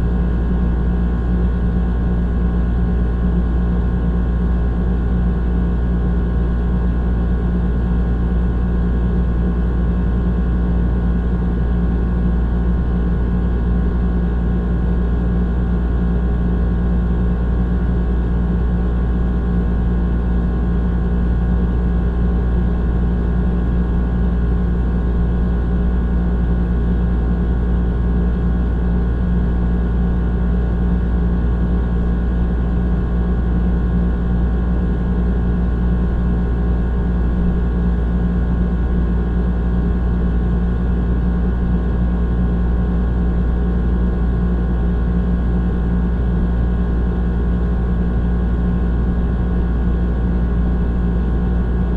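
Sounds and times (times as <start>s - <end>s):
air conditioner motor hum: 0.0s - 51.9s
rattling compressor and fan drone: 0.0s - 51.9s.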